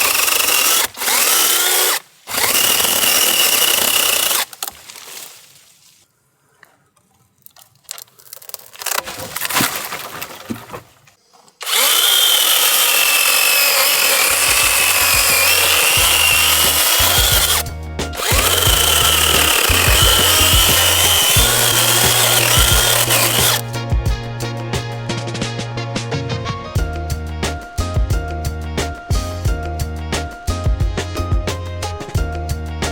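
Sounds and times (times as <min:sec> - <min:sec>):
chainsaw cutting wood: 0:00.0 - 0:04.8, 0:08.7 - 0:10.0, 0:11.6 - 0:23.7
background music with bass: 0:14.6 - 0:32.9.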